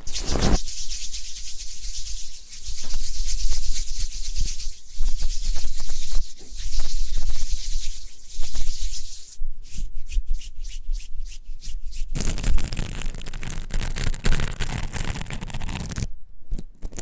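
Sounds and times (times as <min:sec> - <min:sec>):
grainy crackling hiss: 0:00.0 - 0:09.4.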